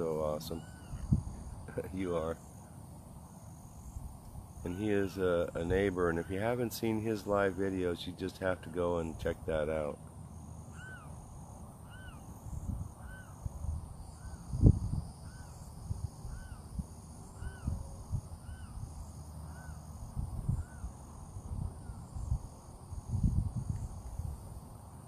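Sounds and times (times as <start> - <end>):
insects trilling: 0.0 - 25.0.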